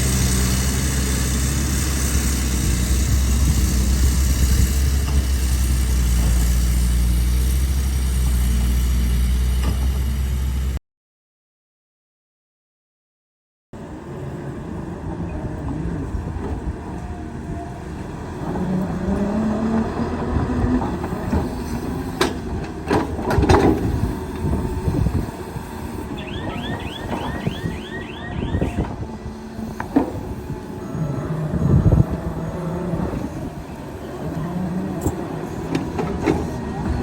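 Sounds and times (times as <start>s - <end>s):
excavator diesel engine humming: 0.0s - 10.8s, 13.8s - 37.0s
high chirps: 26.2s - 28.9s.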